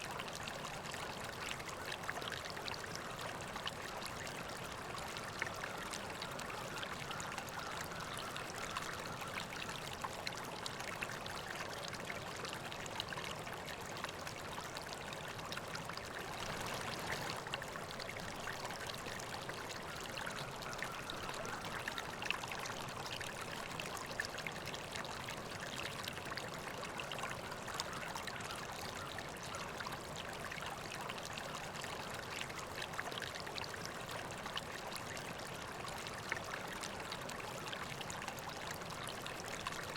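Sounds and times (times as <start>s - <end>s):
river water flowing: 0.0s - 39.9s
small water splashes: 1.6s - 26.7s.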